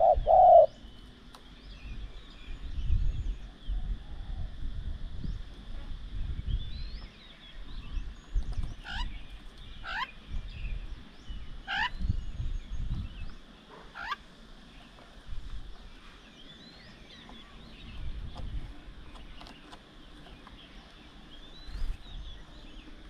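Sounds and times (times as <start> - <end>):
sharp rising bird calls: 0.0 - 0.9.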